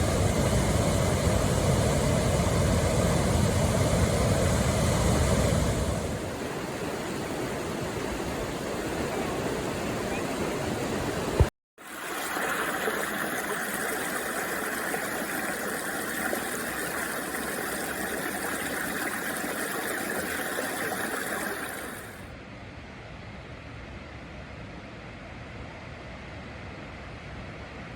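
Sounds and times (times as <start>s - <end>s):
waterfall rushing: 11.8s - 22.2s.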